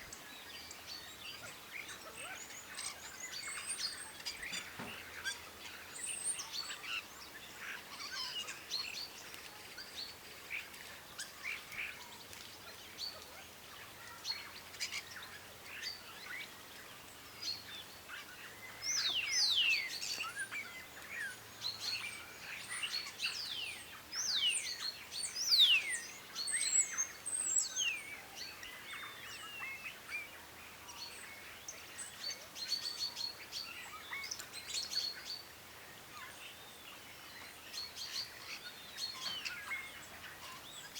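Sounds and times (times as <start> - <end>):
birds chirping and calling: 37.3 - 40.9.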